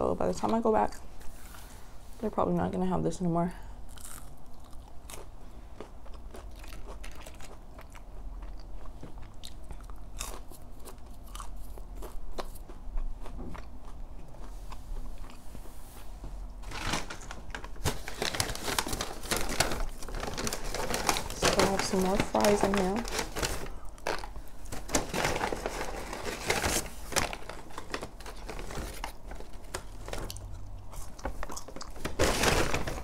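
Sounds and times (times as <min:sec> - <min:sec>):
crunchy bites and wet chewing: 0:03.9 - 0:15.5
paper bag rustling: 0:16.6 - 0:30.5, 0:31.2 - 0:33.0.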